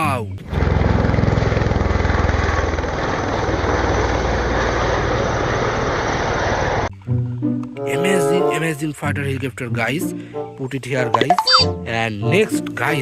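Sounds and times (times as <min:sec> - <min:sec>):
helicopter rotor chop: 0:00.5 - 0:06.9.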